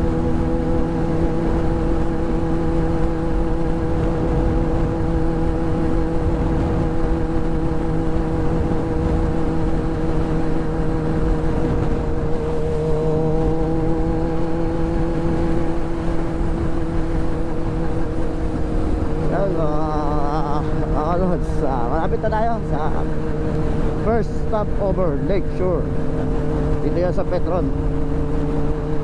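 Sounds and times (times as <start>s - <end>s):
low rumbling noise: 0.0s - 29.0s
motorcycle engine droning: 0.0s - 29.0s.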